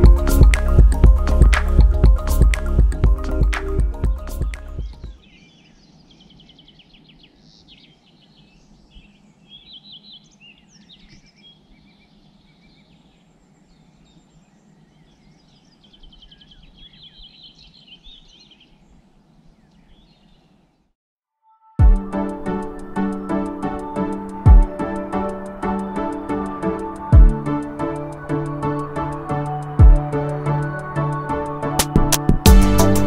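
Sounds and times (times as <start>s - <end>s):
songbirds chirping and trilling: 0.0s - 20.9s, 22.1s - 31.8s
faint steady background noise: 5.0s - 21.0s.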